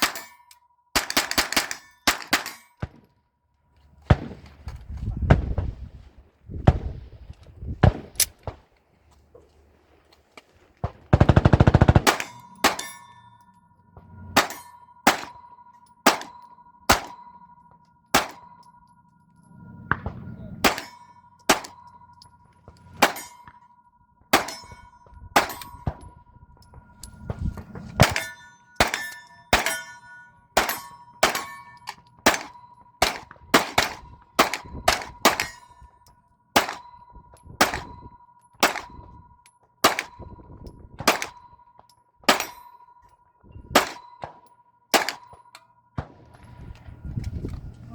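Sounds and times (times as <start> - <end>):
gunshots: 1.0 - 3.0, 4.1 - 4.6, 10.8 - 13.0, 14.4 - 15.4, 16.0 - 16.3, 16.9 - 17.2, 18.1 - 18.4, 19.9 - 21.8, 24.3 - 24.8, 25.4 - 26.1, 27.3 - 29.9, 30.6 - 31.6, 32.2 - 35.6, 36.6 - 36.9, 37.6 - 38.0, 38.6 - 39.0, 39.8 - 40.2, 41.0 - 41.4, 43.8 - 45.3
steel target ringing: 11.5 - 18.9, 19.8 - 33.4.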